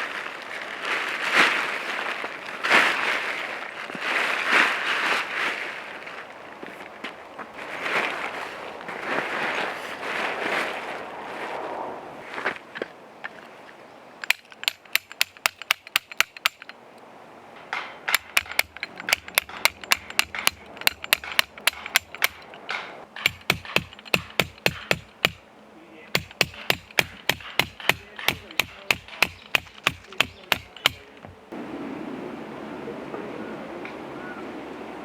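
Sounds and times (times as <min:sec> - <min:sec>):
hammer striking tent pegs: 0:14.2 - 0:16.8, 0:17.6 - 0:25.4, 0:26.1 - 0:31.4
steady rushing noise: 0:30.7 - 0:35.0.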